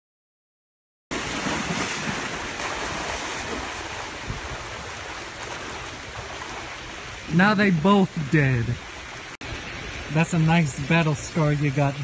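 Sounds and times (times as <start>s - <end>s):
wind buffeting microphone: 1.4s - 7.2s.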